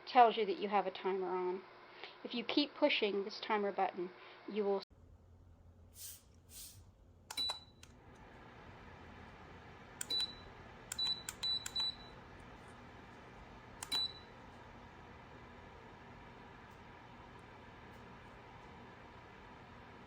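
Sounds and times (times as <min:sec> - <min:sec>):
heater fan whirring: 0:04.9 - 0:20.0
short high beeps with clicks: 0:07.3 - 0:07.8, 0:10.0 - 0:12.1.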